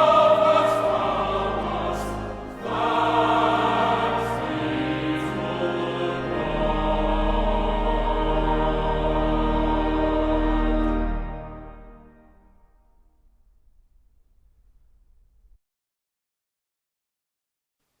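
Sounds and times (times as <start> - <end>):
choir singing: 0.0 - 12.4.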